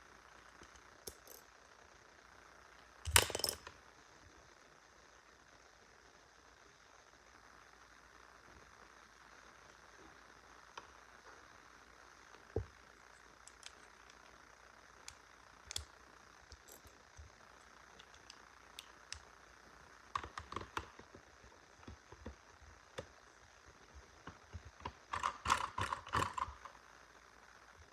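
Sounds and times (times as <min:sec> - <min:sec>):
faint steady hiss: 0:00.0 - 0:27.9
small parts clicking and rattling: 0:00.6 - 0:01.5, 0:03.0 - 0:03.8, 0:13.1 - 0:14.4, 0:15.0 - 0:19.3, 0:20.1 - 0:21.2, 0:24.2 - 0:26.8.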